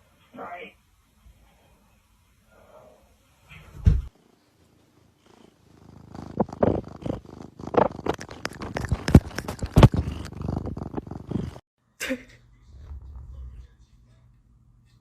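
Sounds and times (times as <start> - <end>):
cat purring: 4.1 - 11.7, 12.6 - 13.8.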